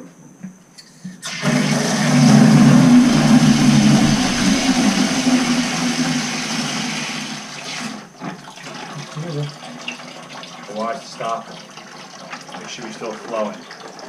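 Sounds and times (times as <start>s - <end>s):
water and air rushing from valve: 1.2s - 8.0s.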